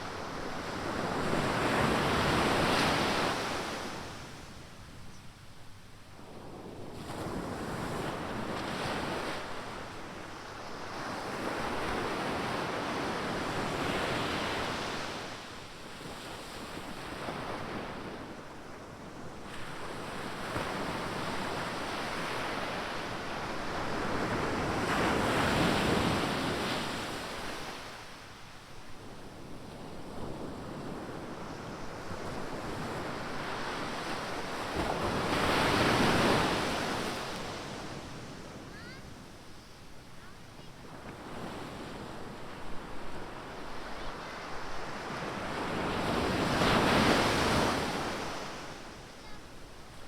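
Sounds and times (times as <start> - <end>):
waves breaking on shore: 31.3 - 39.2, 40.2 - 49.7.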